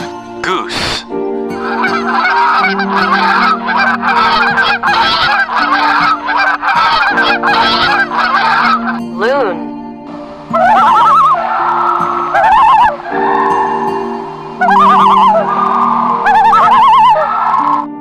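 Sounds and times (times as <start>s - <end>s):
flock of birds calling: 1.6s - 9.0s, 10.4s - 18.0s
low held tones: 10.5s - 18.0s.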